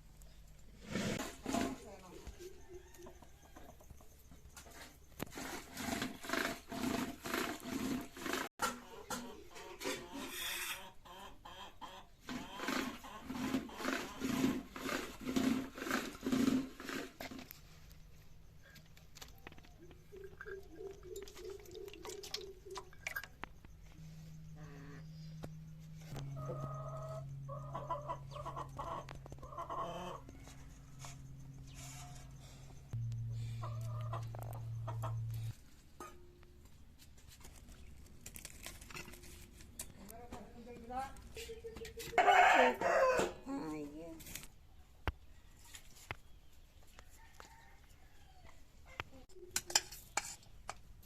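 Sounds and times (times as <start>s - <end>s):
chickens clucking: 8.2s - 14.9s, 18.8s - 23.8s, 26.1s - 32.4s, 33.2s - 36.3s, 41.3s - 43.2s
steady low hum: 22.5s - 36.9s.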